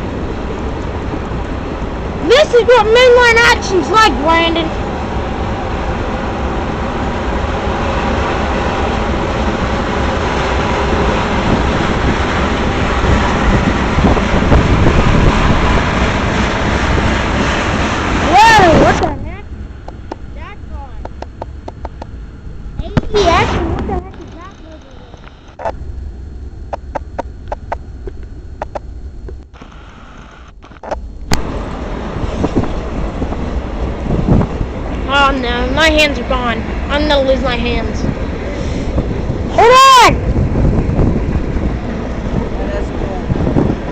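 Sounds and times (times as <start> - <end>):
freight train cars rolling: 0.0 - 27.7, 31.4 - 43.9
sharp clicks: 26.7 - 31.4.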